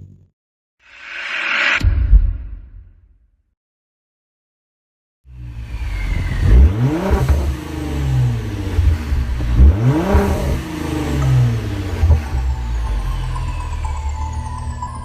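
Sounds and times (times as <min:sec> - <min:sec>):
car engine revving: 0:05.3 - 0:14.5.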